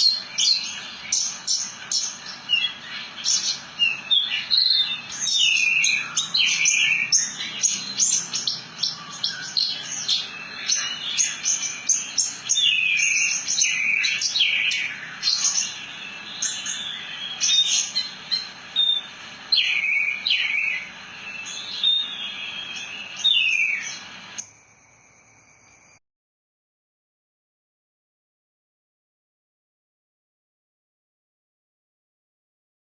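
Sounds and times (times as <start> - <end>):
lark singing chirps and whistles: 0.0 - 24.5.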